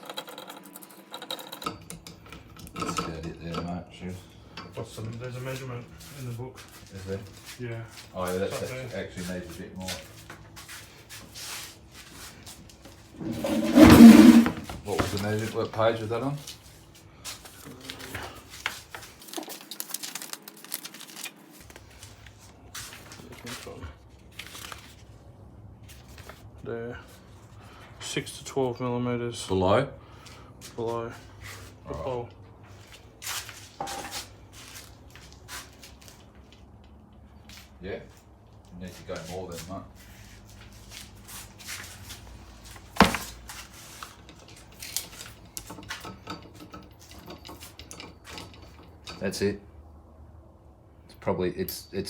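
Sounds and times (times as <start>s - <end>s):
handling noises on motor: 13.1s - 15.3s, 42.8s - 43.7s
paper pages flipping: 18.6s - 23.2s, 24.3s - 25.1s.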